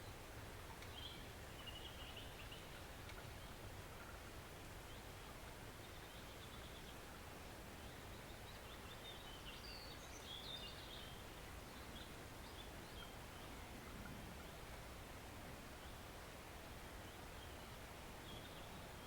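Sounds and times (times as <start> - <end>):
small stream flowing: 0.0 - 19.0
birds chirping: 17.0 - 19.0.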